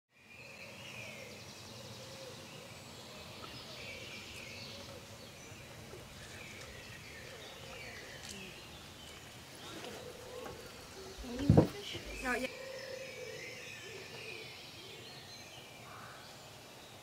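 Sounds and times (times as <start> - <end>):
outdoor background noise: 0.1 - 17.0
faint bird calls: 0.6 - 15.2.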